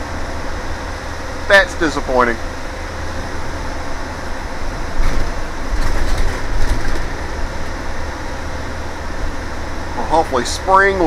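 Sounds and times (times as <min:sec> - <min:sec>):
bus engine and road rumble: 0:00.0 - 0:11.0
clattering rattles: 0:05.0 - 0:07.8.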